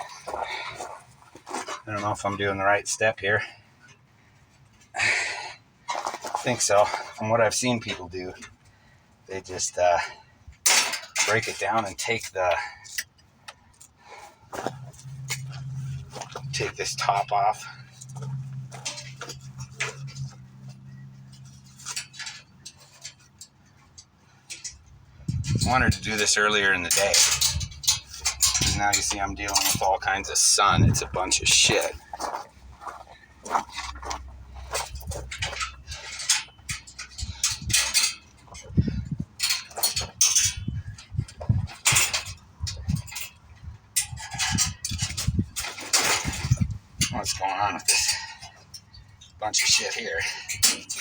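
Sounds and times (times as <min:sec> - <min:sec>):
steady low hum: 0:00.0 - 0:51.0
sharp rattles: 0:09.5 - 0:51.0
clicks and knocks of crate dismantling: 0:10.6 - 0:13.9, 0:21.4 - 0:51.0.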